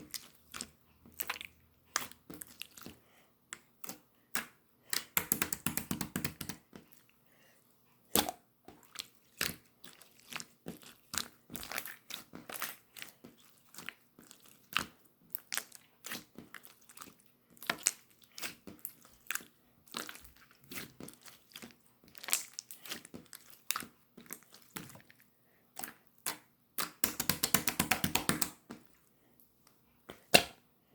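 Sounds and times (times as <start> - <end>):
slime squished with wet pops: 8.1 - 25.1, 30.1 - 30.6.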